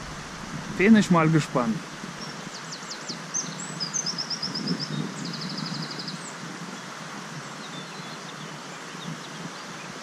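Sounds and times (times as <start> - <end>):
outdoor background noise: 0.0 - 10.0
songbird trilling: 2.2 - 6.3.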